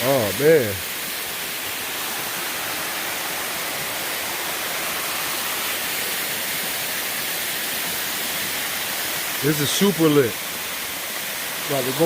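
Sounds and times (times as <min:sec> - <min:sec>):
waterfall crashing into pool: 0:00.0 - 0:12.0.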